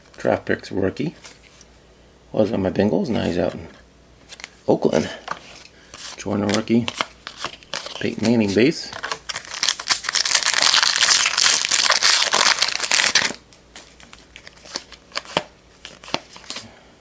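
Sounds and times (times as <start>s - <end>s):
foil wrapper crinkling and tearing: 6.1s - 16.6s.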